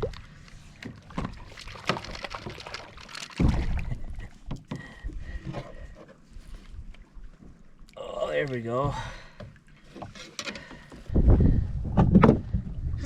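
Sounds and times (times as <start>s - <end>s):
water splashing: 0.0s - 5.4s
knocks against a kayak: 3.4s - 3.9s, 11.9s - 12.6s.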